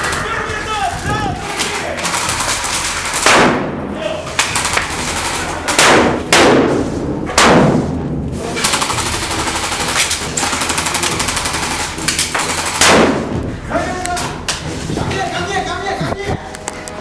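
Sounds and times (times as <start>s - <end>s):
loud sharp bangs: 0.0s - 14.6s
airsoft gun automatic fire: 1.5s - 6.8s, 8.6s - 13.4s.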